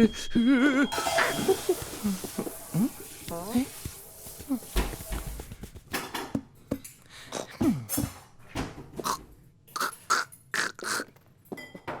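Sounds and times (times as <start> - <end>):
cartoon cat-like vocal noises: 9.8 - 11.1.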